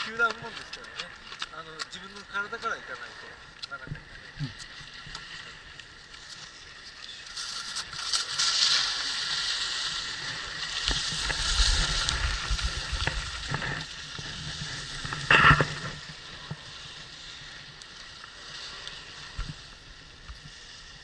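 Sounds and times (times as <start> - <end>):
skis scraping over snow: 0.0 - 3.1, 6.1 - 21.0
wind rumbling on microphone: 7.1 - 21.0.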